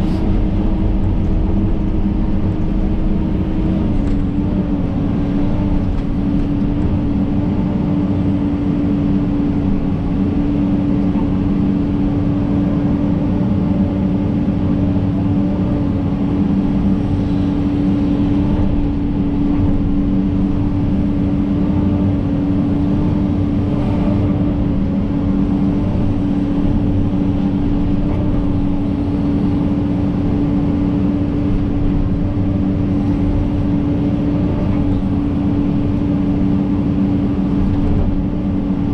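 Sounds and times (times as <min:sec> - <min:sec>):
excavator diesel engine droning: 0:00.0 - 0:38.9.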